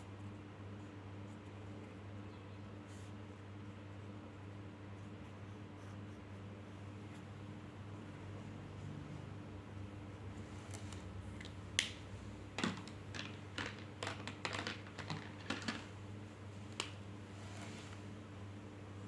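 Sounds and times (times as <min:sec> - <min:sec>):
small hard objects clicking: 0:12.6 - 0:15.9.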